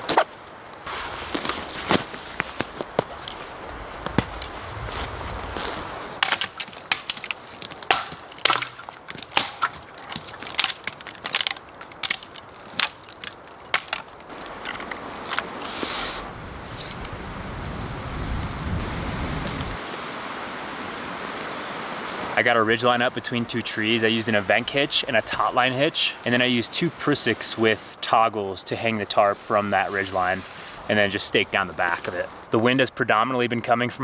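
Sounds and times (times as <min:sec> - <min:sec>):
wind rumbling on microphone: 0:00.0 - 0:06.2, 0:14.2 - 0:22.4
sticks and leaves crunching: 0:00.0 - 0:22.5, 0:29.1 - 0:32.6.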